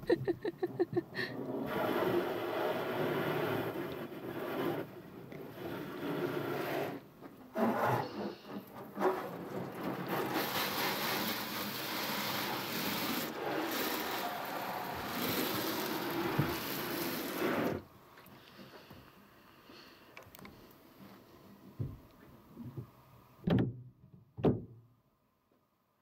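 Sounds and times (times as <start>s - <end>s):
rubbing and scraping: 0.7s - 17.9s
water spray hissing: 7.6s - 18.8s.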